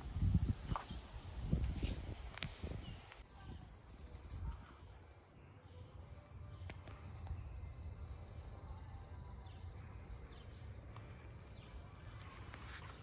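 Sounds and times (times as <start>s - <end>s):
birds chirping: 3.8s - 13.0s
low outdoor rumble: 5.8s - 13.0s.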